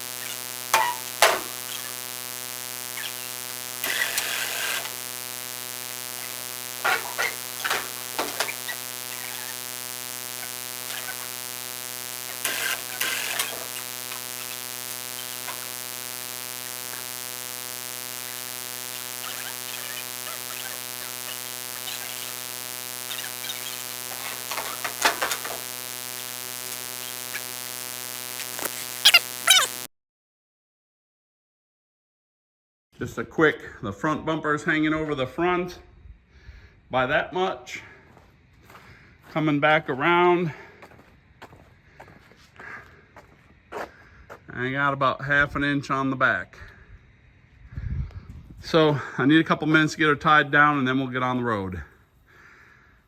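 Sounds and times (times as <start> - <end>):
crackles and clicks: 0.0 - 29.9
electrical buzzing hum: 0.0 - 29.9.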